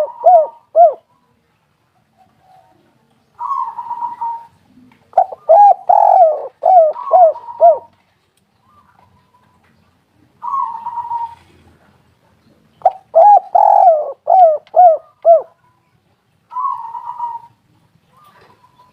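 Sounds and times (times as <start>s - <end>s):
dove cooing: 0.0s - 1.1s, 3.4s - 8.0s, 10.4s - 11.8s, 12.8s - 15.6s, 16.5s - 18.9s.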